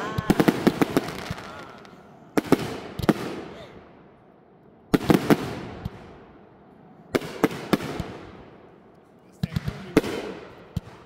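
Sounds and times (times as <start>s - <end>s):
fireworks banging: 0.0s - 3.6s, 9.4s - 11.0s.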